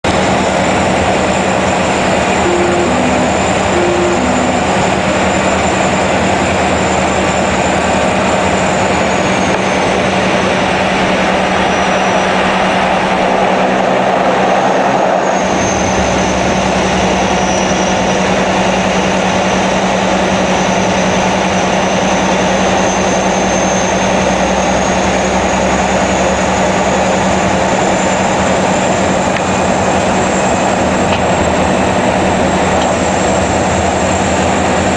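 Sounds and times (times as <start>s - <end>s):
turboprop engine whine: 0.0s - 34.9s
two-tone beeps: 2.3s - 5.0s.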